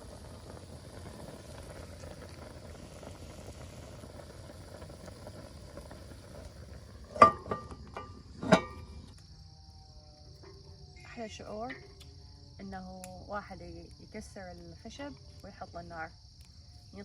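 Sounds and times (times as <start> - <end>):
stew bubbling in pot: 0.0 - 9.2
metallic clanks: 7.1 - 8.9.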